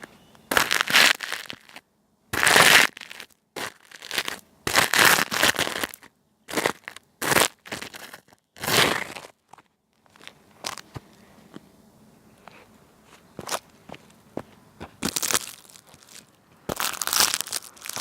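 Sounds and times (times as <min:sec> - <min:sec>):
dry leaves crunching: 0:15.0 - 0:18.0.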